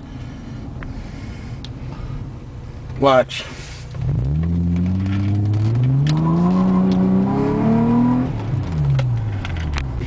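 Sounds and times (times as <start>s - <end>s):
car engine accelerating: 3.9s - 10.0s.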